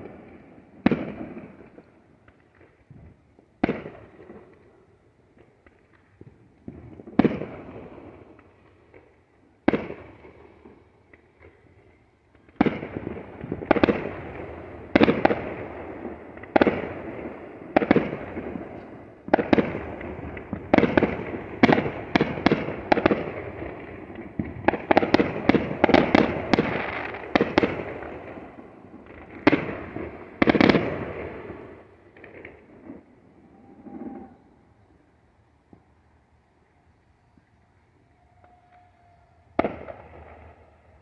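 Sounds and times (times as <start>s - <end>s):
firework shells bursting with booms: 5.6s - 11.7s, 12.3s - 34.4s, 39.5s - 40.6s.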